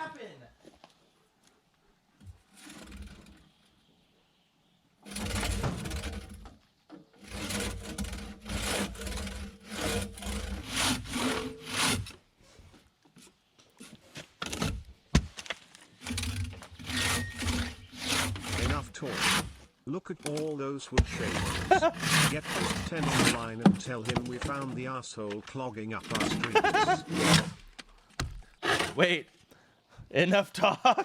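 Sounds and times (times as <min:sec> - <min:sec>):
hand tool rasping into wood: 0:02.5 - 0:03.6, 0:05.0 - 0:06.6, 0:07.2 - 0:12.2, 0:13.2 - 0:14.9, 0:16.0 - 0:19.7, 0:21.0 - 0:25.0, 0:25.9 - 0:29.1.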